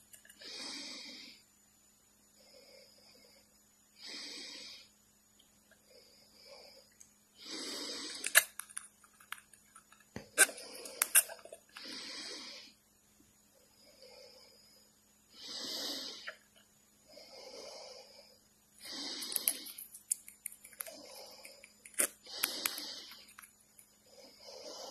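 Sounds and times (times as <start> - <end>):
bird hissing into plastic cup: 22.0 - 23.3.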